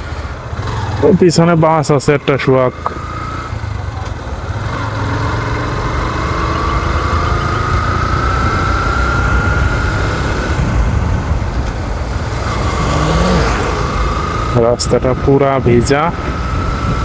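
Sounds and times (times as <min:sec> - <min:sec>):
motorcycle engine rumbling: 0:00.0 - 0:17.0
wind noise: 0:07.8 - 0:17.0.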